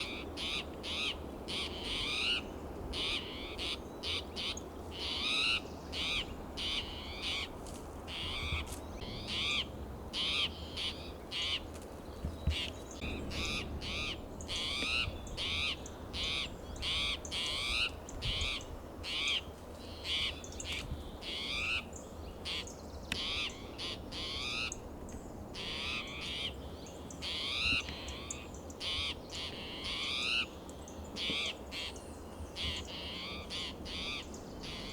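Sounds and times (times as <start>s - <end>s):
bird alarm calls: 12.5s - 18.5s.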